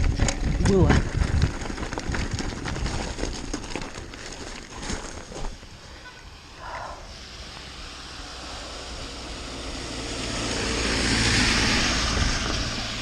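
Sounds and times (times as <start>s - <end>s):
wind rushing on microphone: 0.0s - 2.8s, 10.5s - 13.0s
bike rattling over stones: 0.0s - 6.0s
bike tyre noise: 0.0s - 13.0s.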